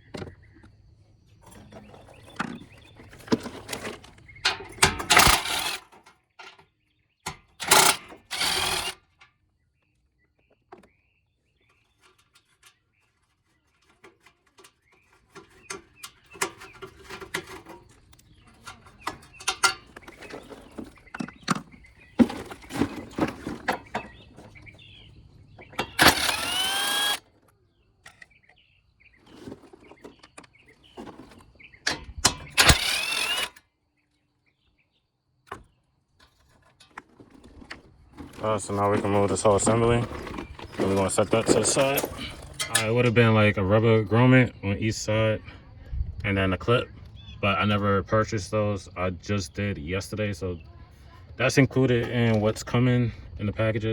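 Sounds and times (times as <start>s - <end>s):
tools and parts rattling: 1.4s - 9.6s, 10.4s - 33.6s, 35.5s - 43.3s
loud noisy bursts: 7.6s - 9.0s, 26.0s - 27.2s.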